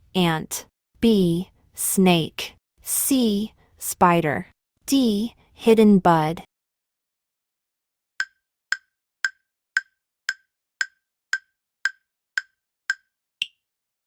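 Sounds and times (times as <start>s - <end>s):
countdown timer woody clicks: 8.2s - 13.6s.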